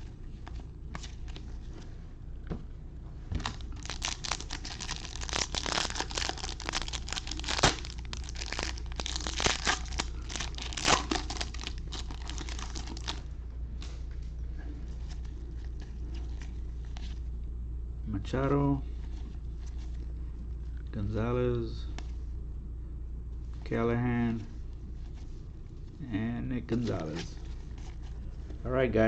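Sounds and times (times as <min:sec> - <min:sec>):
foil wrapper tearing and crinkling: 0:03.4 - 0:13.2.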